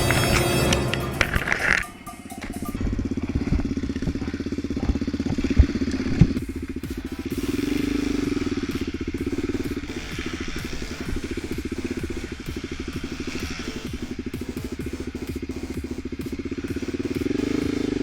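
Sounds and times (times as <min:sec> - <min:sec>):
off-road vehicle engine idling: 0:02.5 - 0:18.0.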